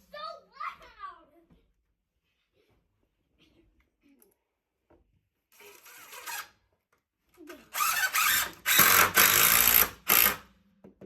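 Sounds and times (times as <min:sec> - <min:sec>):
power drill driving screws into wood: 0:05.6 - 0:06.6, 0:07.7 - 0:10.5.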